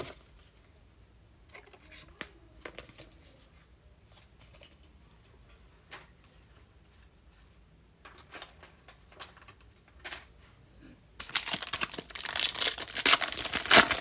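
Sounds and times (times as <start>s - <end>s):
card pack wrapper crinkling: 11.2s - 14.0s
trading cards rustling: 11.2s - 14.0s.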